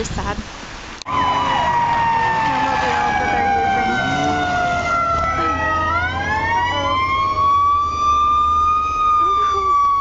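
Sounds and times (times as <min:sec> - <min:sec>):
emergency vehicle siren wailing: 0:01.1 - 0:10.0.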